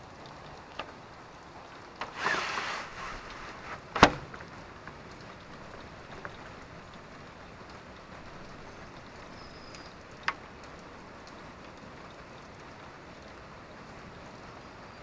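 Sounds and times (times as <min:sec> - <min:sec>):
water drips: 0:00.0 - 0:02.2, 0:04.3 - 0:15.0
light rain hissing: 0:00.0 - 0:15.0
rustling: 0:02.0 - 0:04.5.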